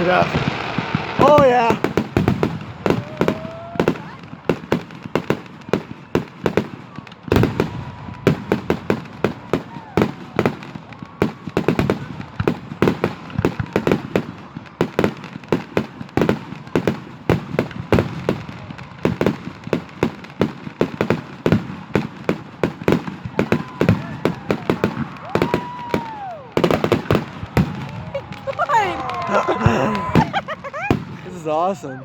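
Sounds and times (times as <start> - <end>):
fireworks bangs and crackling: 0.0 - 31.9
firework whistle: 2.2 - 4.2.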